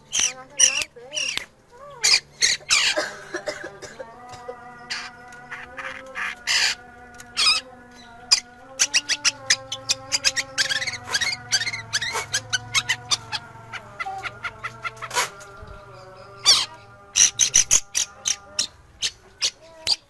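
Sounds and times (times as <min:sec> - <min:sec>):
bird chattering: 0:00.0 - 0:03.1, 0:04.6 - 0:20.0
shrike calling harsh notes: 0:04.8 - 0:20.0.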